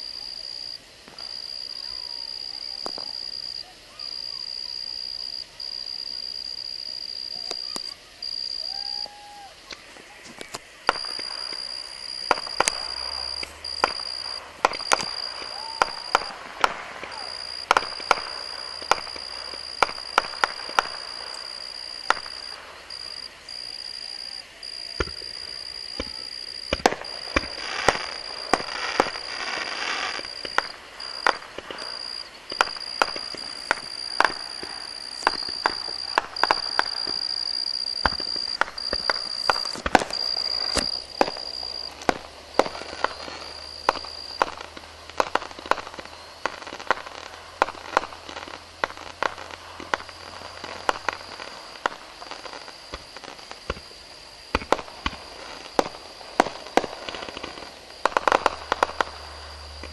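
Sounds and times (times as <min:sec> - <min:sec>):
fireworks crackling: 0:00.0 - 0:59.9
firework shells bursting: 0:07.4 - 0:59.9
high-pitched whine: 0:10.5 - 0:45.1, 0:58.5 - 0:59.9.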